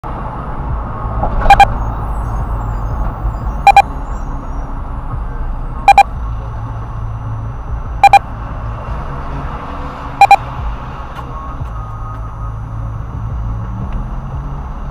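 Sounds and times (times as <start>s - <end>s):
car engine rumble: 0.0s - 14.9s
road noise: 0.0s - 14.9s
short electronic beeps: 1.4s - 4.4s, 5.8s - 6.2s, 8.0s - 8.3s, 10.2s - 10.5s.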